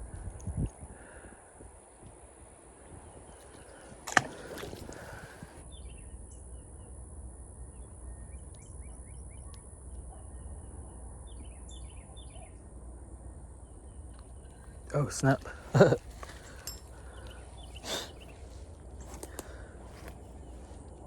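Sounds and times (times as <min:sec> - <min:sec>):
birds chirping: 0:00.0 - 0:12.7, 0:13.3 - 0:21.0
splash in water: 0:03.5 - 0:05.6.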